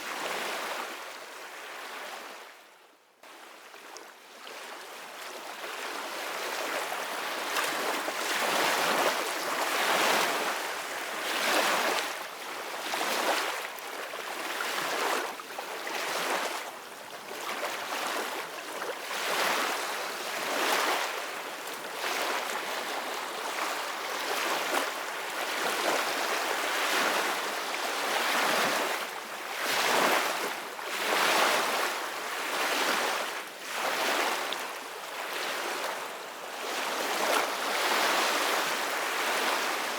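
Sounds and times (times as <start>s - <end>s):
ocean waves breaking on shore: 17.3s - 39.9s.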